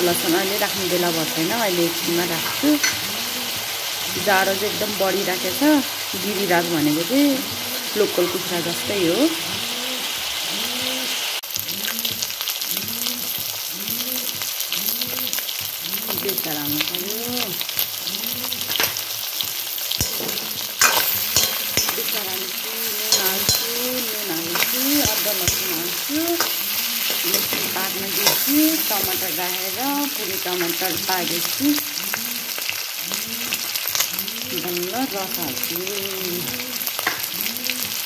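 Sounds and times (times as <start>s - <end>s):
meat sizzling in hot oil: 0.0s - 38.0s
metal spoon scraping a pan: 2.2s - 3.3s, 18.5s - 31.0s.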